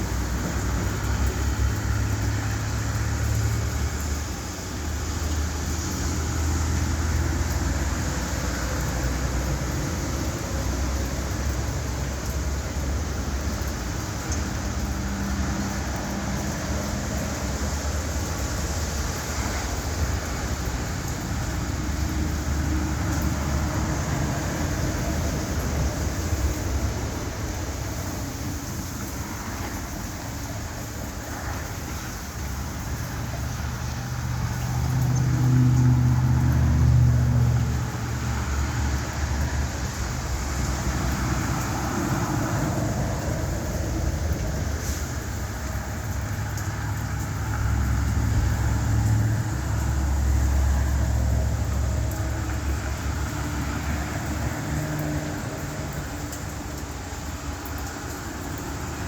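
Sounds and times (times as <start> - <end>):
traffic on wet road: 0.0 - 59.0
vehicle engine passing: 31.4 - 59.0.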